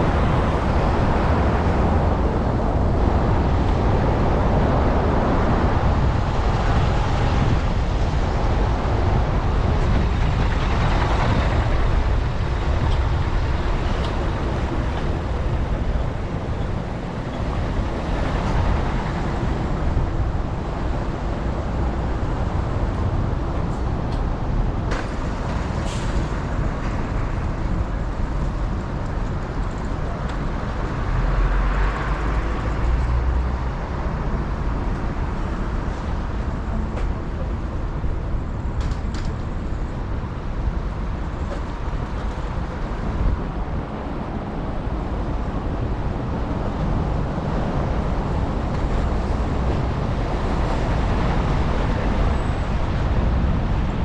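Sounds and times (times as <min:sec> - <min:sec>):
road traffic rush: 0:00.0 - 0:54.0
wind on microphone: 0:00.0 - 0:54.0.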